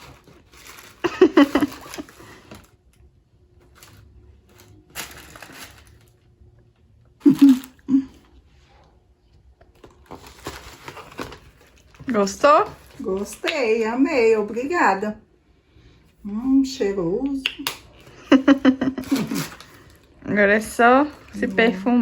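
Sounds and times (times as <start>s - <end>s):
gift packaging crinkling: 0.0s - 3.0s, 3.6s - 6.3s, 7.2s - 8.0s, 9.7s - 13.8s, 18.0s - 22.0s.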